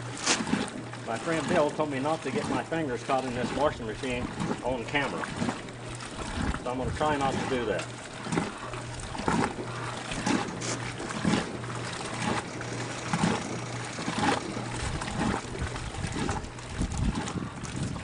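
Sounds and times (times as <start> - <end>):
electric motor hum: 0.0 - 18.0
water splashing and sloshing: 0.0 - 18.0.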